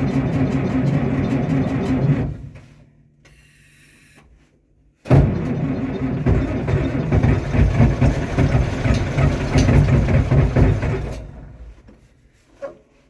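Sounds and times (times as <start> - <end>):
tractor engine cold starting: 0.0 - 2.7, 5.1 - 11.8.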